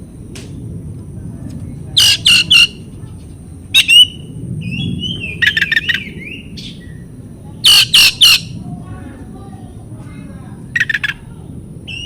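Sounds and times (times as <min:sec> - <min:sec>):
bird calling and singing: 0:01.9 - 0:08.6, 0:10.7 - 0:11.3.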